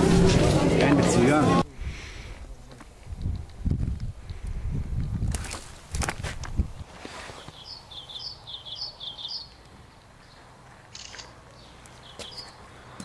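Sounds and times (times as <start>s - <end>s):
songbird chirping: 7.2s - 13.0s.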